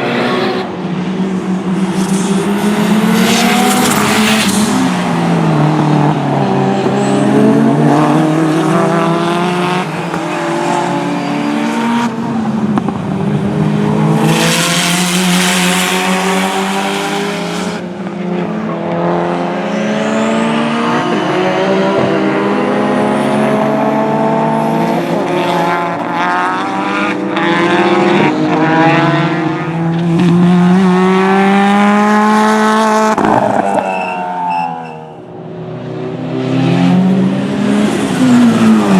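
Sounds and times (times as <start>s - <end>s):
race car engines revving: 0.0s - 38.9s.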